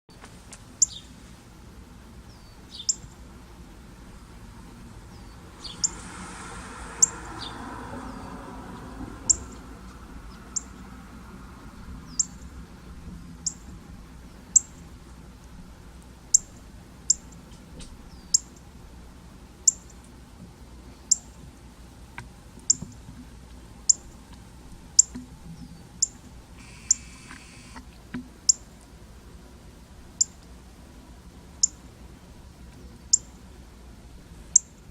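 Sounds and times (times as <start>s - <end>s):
soft rushing hiss: 0.1s - 34.9s
bird high-pitched chirp: 0.8s - 1.1s, 2.3s - 3.1s, 5.1s - 6.0s, 9.3s - 9.6s, 14.6s - 14.8s, 18.1s - 18.5s, 19.7s - 19.9s, 33.1s - 33.3s.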